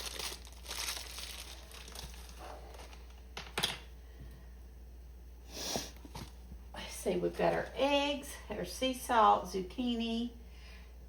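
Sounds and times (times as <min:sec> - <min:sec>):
crinkling and rustling handling: 0:00.0 - 0:03.7.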